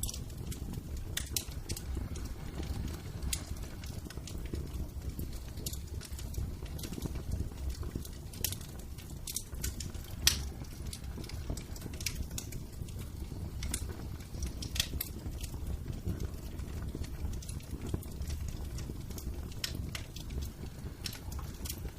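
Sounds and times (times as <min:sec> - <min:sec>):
low rumble of fire: 0:00.0 - 0:21.9
wood fire crackling: 0:00.0 - 0:21.9.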